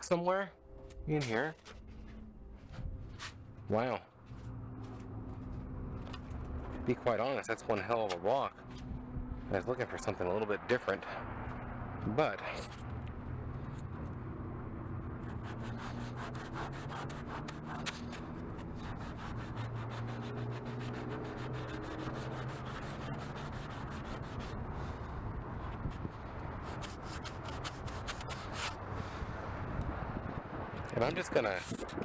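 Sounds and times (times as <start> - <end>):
sandpaper rasping on plastic: 15.2 - 24.9, 25.7 - 28.8.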